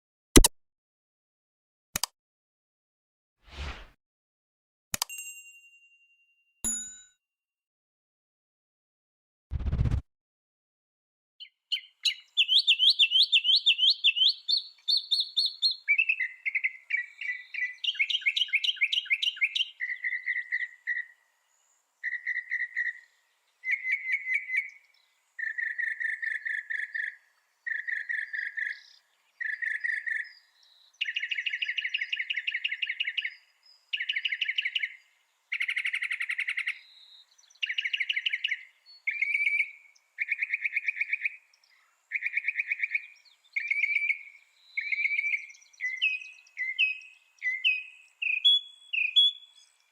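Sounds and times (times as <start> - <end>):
mockingbird singing: 11.4 - 21.2, 25.4 - 49.8.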